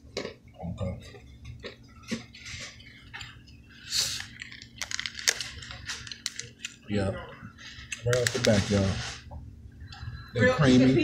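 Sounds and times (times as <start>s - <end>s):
crunching and chewing candies: 0.0s - 6.8s.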